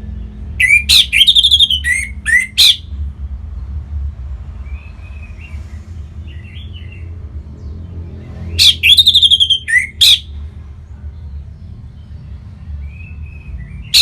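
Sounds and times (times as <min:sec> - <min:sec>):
thrush singing: 0:00.0 - 0:02.8, 0:08.5 - 0:10.3.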